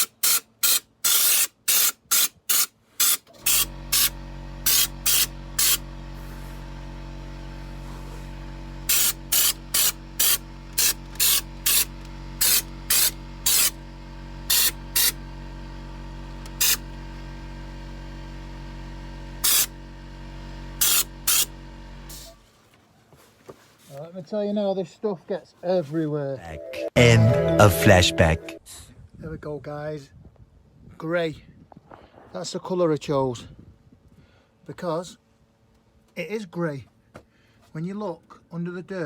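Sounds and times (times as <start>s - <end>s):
spray hissing bursts: 0.0s - 5.8s, 8.9s - 13.8s, 14.5s - 15.1s, 16.6s - 16.8s, 19.4s - 19.7s, 20.8s - 21.5s.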